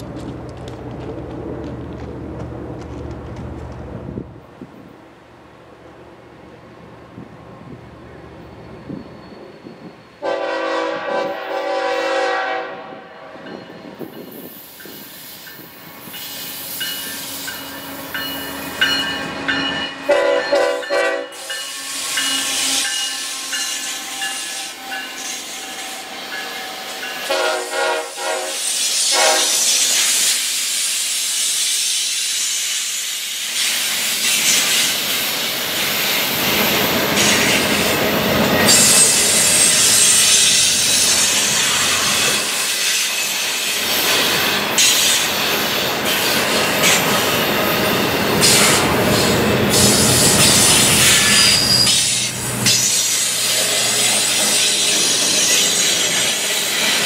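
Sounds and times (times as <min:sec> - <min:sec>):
passing train wheel noise: 0:00.0 - 0:57.0
high wheel squeals: 0:08.6 - 0:10.2, 0:38.5 - 0:57.0
train horn blasts: 0:10.2 - 0:13.7, 0:19.8 - 0:29.8.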